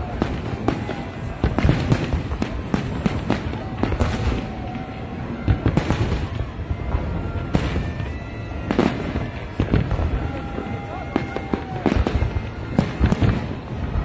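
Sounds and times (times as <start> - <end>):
fireworks bursting: 0.0 - 14.0
fireworks crackles: 0.0 - 14.0.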